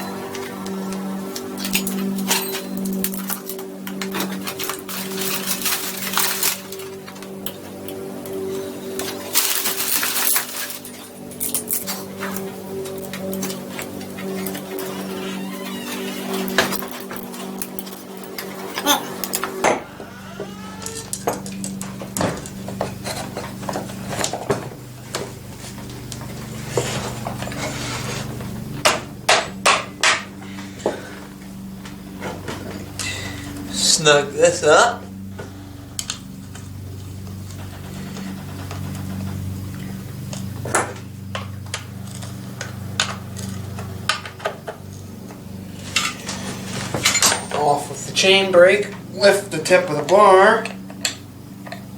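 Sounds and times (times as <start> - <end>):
chainsaw chain clinking: 0.0 - 24.4, 41.5 - 51.8
steady low hum: 0.0 - 51.9.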